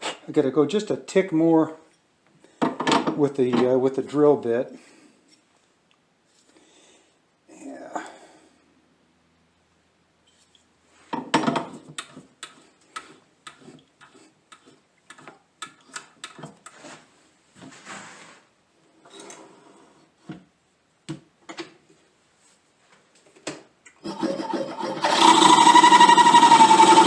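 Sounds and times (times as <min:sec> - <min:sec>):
hand tools clicking and knocking: 0:11.4 - 0:16.8.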